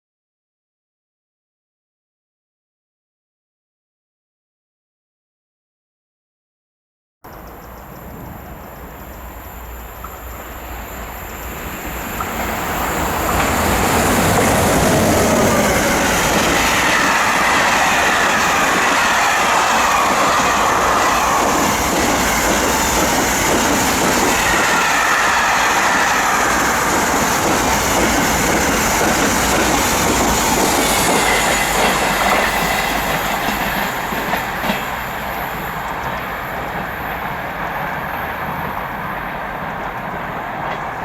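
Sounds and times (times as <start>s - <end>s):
train running past: 7.3s - 41.0s
wheels rattling over rails: 10.0s - 41.0s.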